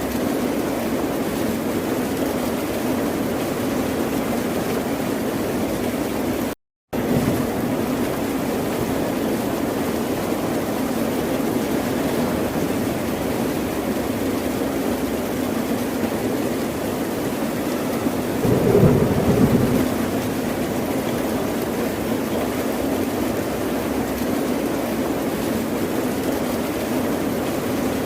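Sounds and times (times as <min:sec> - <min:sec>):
ocean surf rushing: 0:18.4 - 0:21.5.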